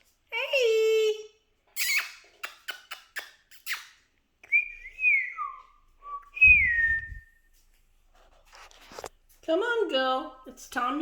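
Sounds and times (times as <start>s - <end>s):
whistled gliding tones: 4.5s - 7.4s.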